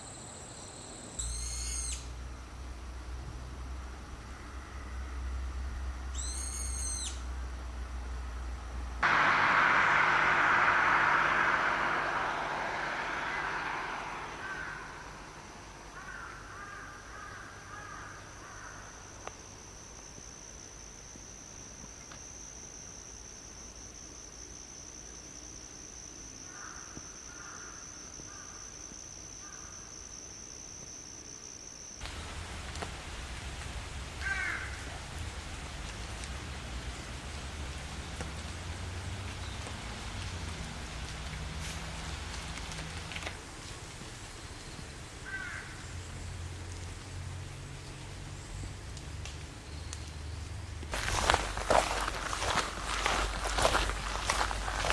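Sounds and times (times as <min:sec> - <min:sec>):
rising bird chirp: 0:06.1 - 0:07.2, 0:09.0 - 0:16.5
low rumble: 0:09.0 - 0:16.1
crow cawing: 0:13.3 - 0:15.4, 0:16.0 - 0:18.8, 0:34.2 - 0:34.9, 0:45.2 - 0:45.8.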